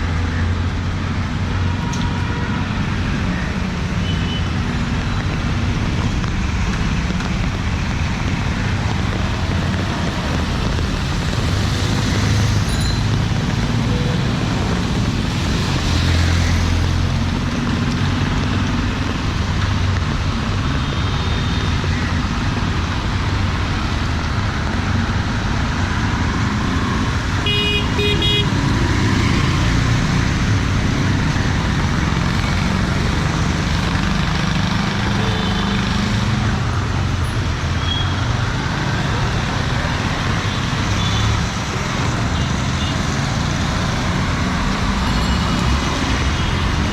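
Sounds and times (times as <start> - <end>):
traffic engines and road noise: 0.0 - 46.9
vehicle horns honking: 27.4 - 28.8.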